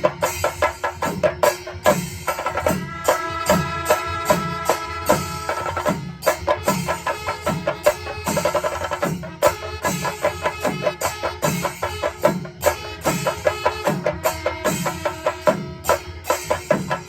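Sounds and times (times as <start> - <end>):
cymbal strokes: 0.0 - 17.0
drums beating fast rhythm: 0.0 - 17.0
wind instrument holding a note: 2.8 - 7.4.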